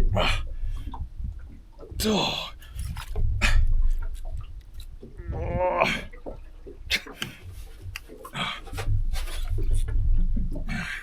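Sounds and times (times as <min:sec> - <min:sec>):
low rumble: 0:00.0 - 0:11.0
man groaning: 0:05.2 - 0:06.1
man grunting and straining: 0:05.2 - 0:06.1
tackle clicks and knocks: 0:06.1 - 0:11.0.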